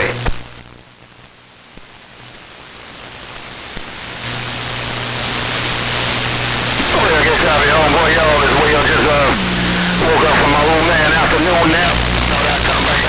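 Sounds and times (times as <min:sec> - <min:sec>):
radio static hiss: 0:00.0 - 0:13.0
low hum: 0:06.8 - 0:13.0.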